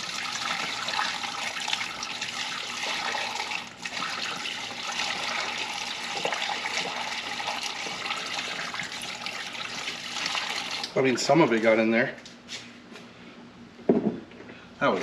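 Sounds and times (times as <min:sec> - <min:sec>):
water pouring and splashing: 0:00.0 - 0:11.0.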